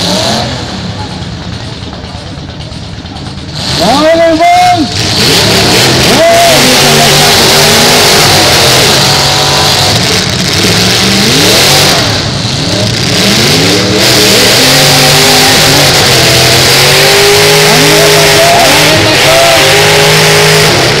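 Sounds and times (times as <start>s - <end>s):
car engines revving hard: 0.0s - 1.9s, 2.6s - 21.0s
roar of exhaust: 5.0s - 21.0s.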